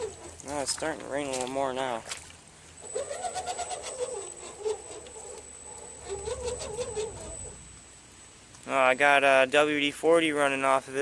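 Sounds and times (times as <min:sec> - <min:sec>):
thin high-pitched whine: 0:00.0 - 0:11.0
electric motor and gears whining: 0:02.8 - 0:09.0.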